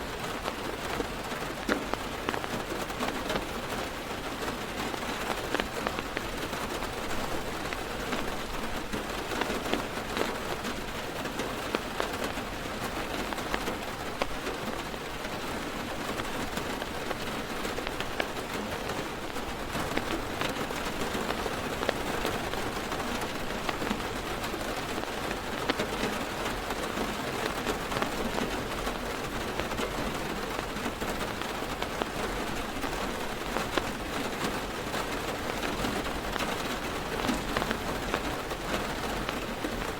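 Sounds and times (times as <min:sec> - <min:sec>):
rain on car roof: 0:00.0 - 0:39.9
sharp raindrop taps: 0:00.0 - 0:39.9.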